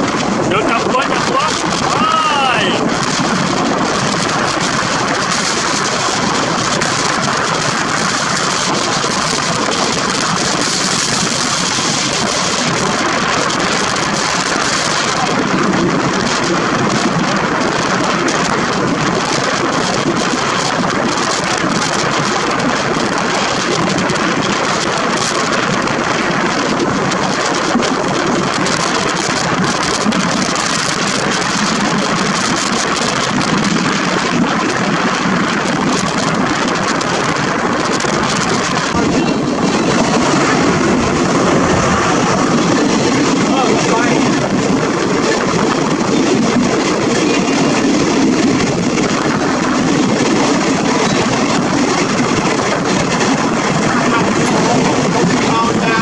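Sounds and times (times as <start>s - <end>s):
train wheels rushing on rails: 0.0s - 56.0s.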